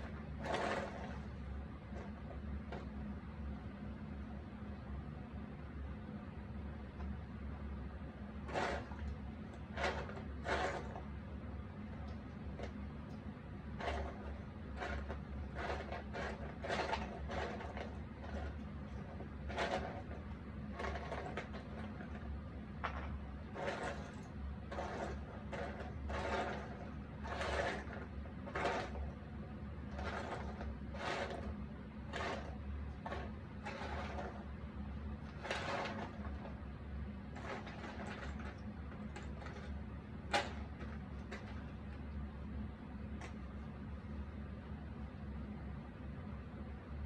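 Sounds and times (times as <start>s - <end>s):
puzzle pieces sliding on table: 0.0s - 1.3s, 13.8s - 29.1s, 29.8s - 41.9s
steady low hum: 0.0s - 47.0s.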